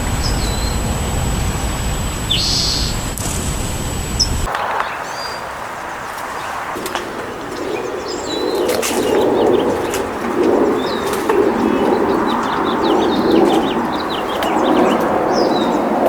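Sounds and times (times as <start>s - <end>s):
small birds chirping: 0.0s - 16.0s
pigeons cooing: 6.2s - 16.0s.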